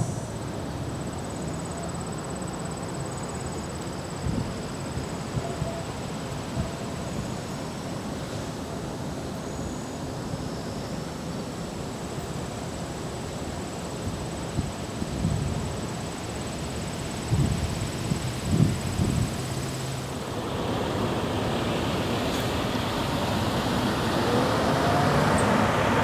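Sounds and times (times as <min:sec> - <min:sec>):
wind buffeting microphone: 0:17.3 - 0:26.0
outdoor rushing noise: 0:18.2 - 0:26.0.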